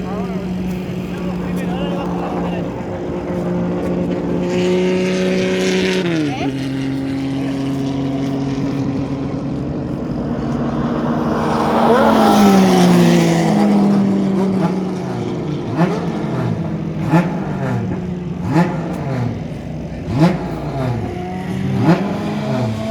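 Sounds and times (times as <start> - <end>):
engine revving: 0.0 - 22.9
race car engines running: 0.0 - 22.9
race car passing: 0.0 - 22.9.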